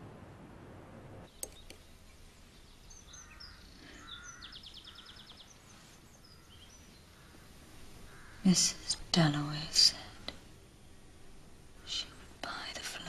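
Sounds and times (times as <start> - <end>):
faint background hiss: 0.0 - 13.0
birds chirping: 1.2 - 12.8.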